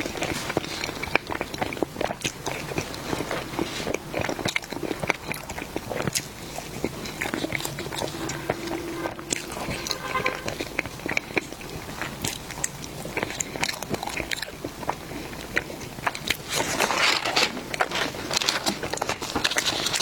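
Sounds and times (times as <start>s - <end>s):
crunchy chewing: 0.0s - 20.0s.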